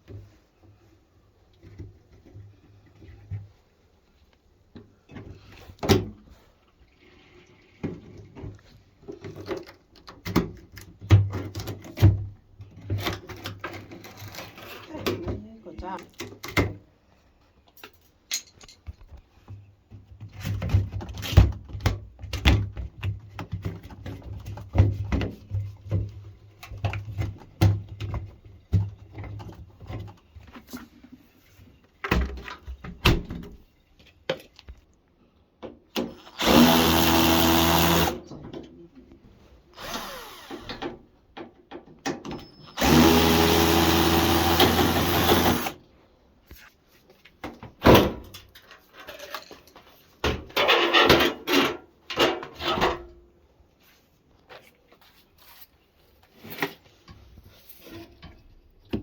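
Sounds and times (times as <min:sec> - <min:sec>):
tools and parts clicking: 0:17.8 - 0:19.0
power drill running: 0:36.1 - 0:38.2, 0:39.8 - 0:40.8, 0:42.7 - 0:45.8.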